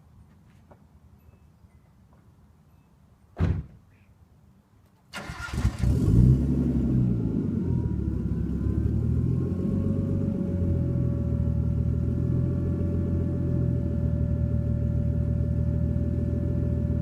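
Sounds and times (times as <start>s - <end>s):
car engine cranking and idling: 5.1s - 17.0s
loud engine burst: 5.2s - 6.6s.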